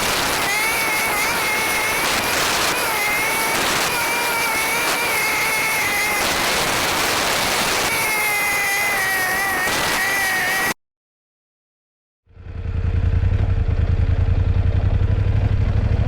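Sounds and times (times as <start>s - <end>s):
wind and road noise: 0.0s - 8.1s, 12.5s - 16.0s
high wavering whine: 0.0s - 10.8s.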